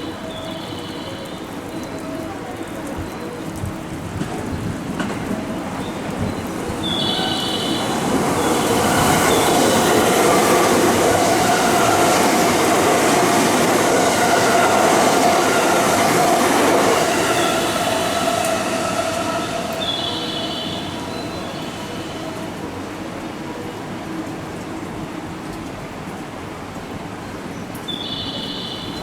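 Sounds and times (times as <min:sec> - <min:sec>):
electric train running: 0:03.6 - 0:22.8.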